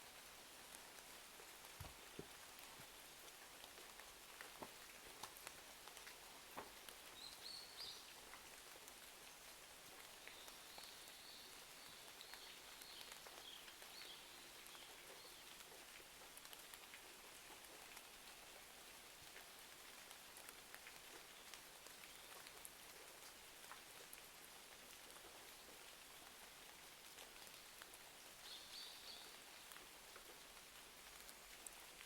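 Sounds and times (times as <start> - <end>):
steady rain hiss: 0.0 - 32.0.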